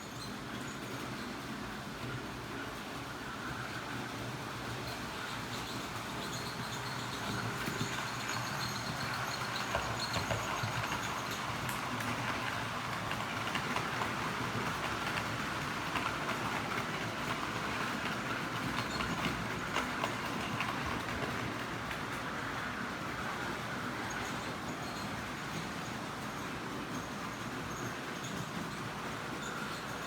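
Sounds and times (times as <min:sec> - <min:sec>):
wheels clicking over rail joints: 0:00.1 - 0:30.0.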